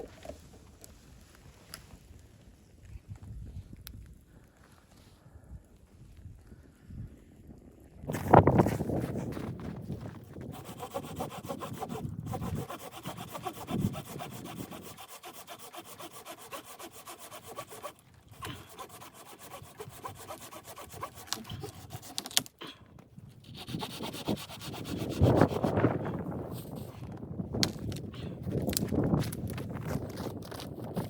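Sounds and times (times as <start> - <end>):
saw cutting through wood: 10.4 - 22.5, 23.4 - 26.9.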